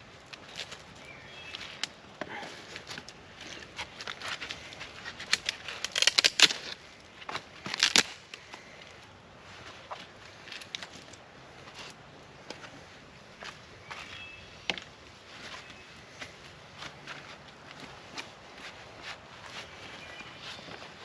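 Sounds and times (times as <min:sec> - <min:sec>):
dry sticks snapping: 0:00.3 - 0:02.0, 0:05.2 - 0:06.8, 0:07.6 - 0:08.4.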